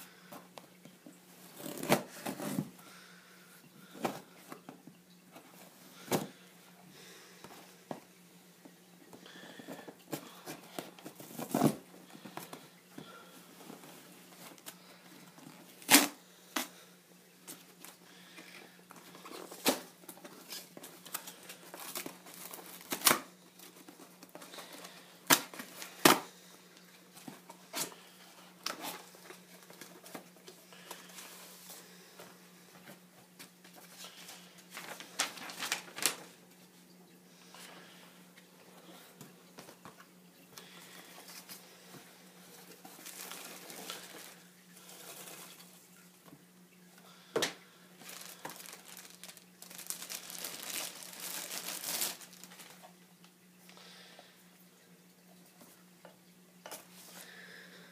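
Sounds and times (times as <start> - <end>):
packaging crinkling and tearing: 15.5 - 16.7, 19.1 - 26.3, 33.9 - 36.4, 42.8 - 45.6, 48.0 - 53.0.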